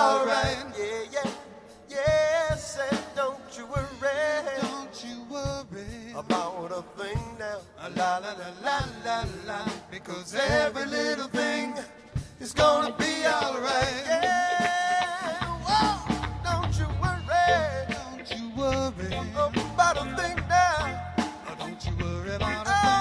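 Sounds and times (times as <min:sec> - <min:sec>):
live reggae band playing: 0:00.0 - 0:23.0
steady drum beat: 0:00.0 - 0:23.0
heavy bass: 0:15.4 - 0:23.0
bending lead melody: 0:15.5 - 0:23.0.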